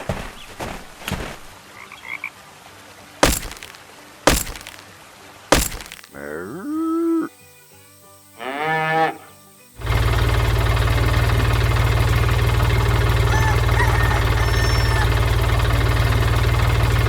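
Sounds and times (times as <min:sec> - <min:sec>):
cartoon sharp cracks: 0:03.2 - 0:04.8, 0:05.5 - 0:06.4.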